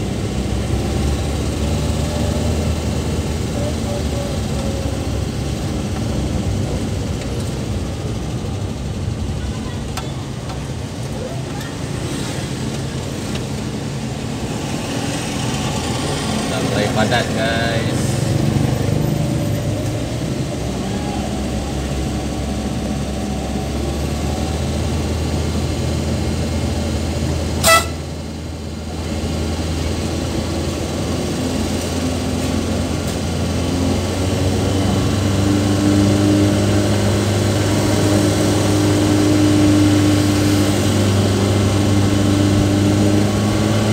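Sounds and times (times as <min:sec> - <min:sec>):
vehicle engine running: 0:00.0 - 0:43.9
short horn toot: 0:27.6 - 0:28.1.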